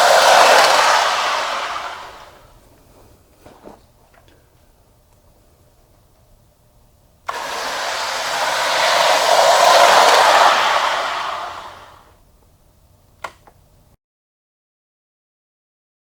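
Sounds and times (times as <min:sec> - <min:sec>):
model locomotives whirring: 0:00.0 - 0:02.5, 0:07.3 - 0:12.2.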